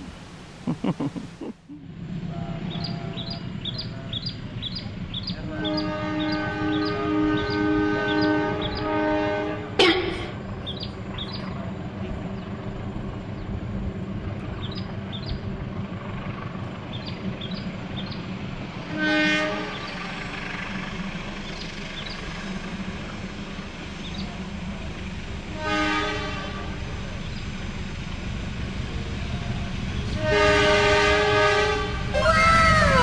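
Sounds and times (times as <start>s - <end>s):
train rumbling: 0.0s - 33.0s
distant train horn: 2.3s - 3.4s, 5.3s - 10.0s, 18.8s - 20.9s, 25.5s - 26.9s, 30.1s - 33.0s.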